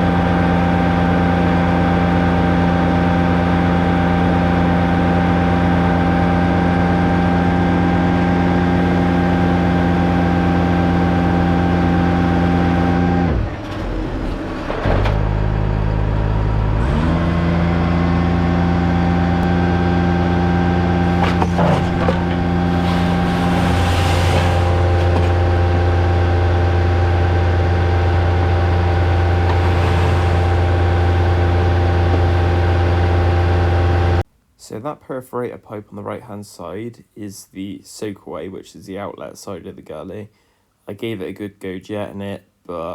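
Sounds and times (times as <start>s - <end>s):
truck engine and pump running: 0.0s - 34.2s.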